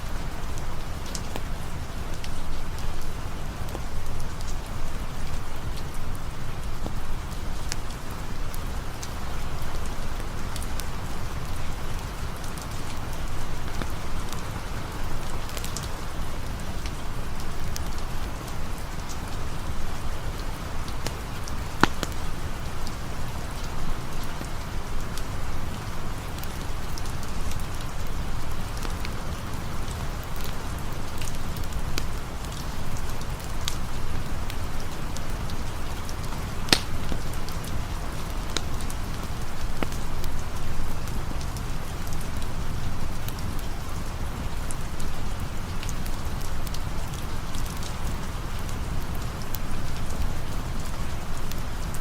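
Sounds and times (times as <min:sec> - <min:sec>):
rain falling: 0:00.0 - 0:52.0
sharp ticks: 0:36.7 - 0:37.2.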